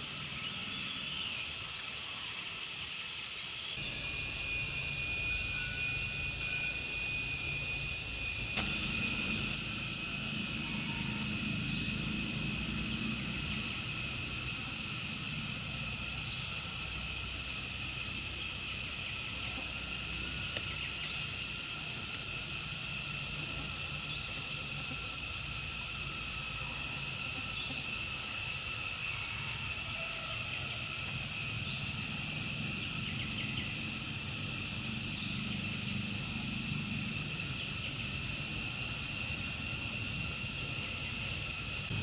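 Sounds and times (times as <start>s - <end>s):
high-pitched insect drone: 0.0s - 42.0s
light clinks: 3.9s - 9.6s.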